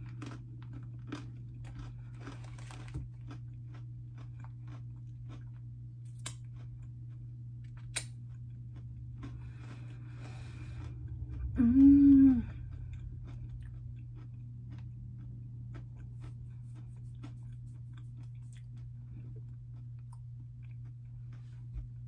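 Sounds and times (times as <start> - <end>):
person chewing crunchy snacks: 0.0 - 22.0
person humming: 11.5 - 12.7.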